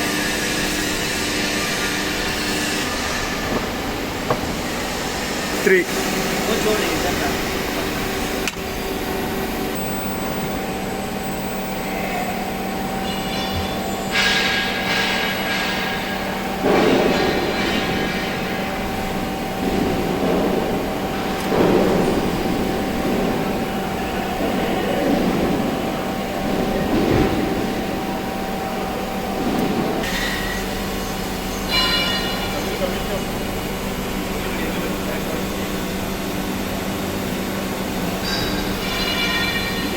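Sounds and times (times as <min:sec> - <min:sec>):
hydraulic pump humming: 0:00.0 - 0:39.9
hydraulic power pack whining: 0:01.8 - 0:11.9.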